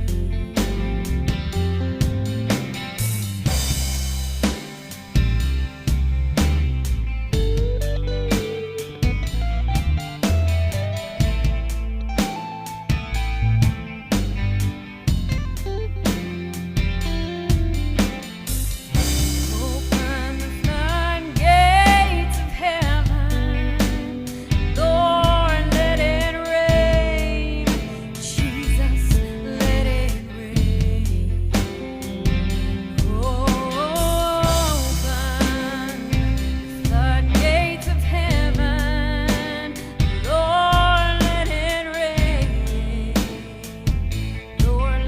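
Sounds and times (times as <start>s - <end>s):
bass drums and instruments: 0.0s - 45.0s
song with band: 0.0s - 45.0s
woman singing with vibrato: 19.4s - 24.2s, 24.8s - 31.4s, 33.0s - 45.0s.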